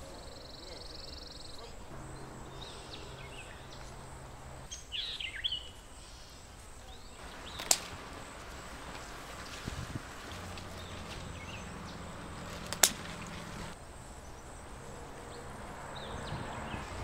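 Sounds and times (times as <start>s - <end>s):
faint rustle of leaves: 0.0s - 17.0s
outdoor background noise: 0.0s - 17.0s
scissors snipping a stem: 7.5s - 8.1s, 12.5s - 13.4s.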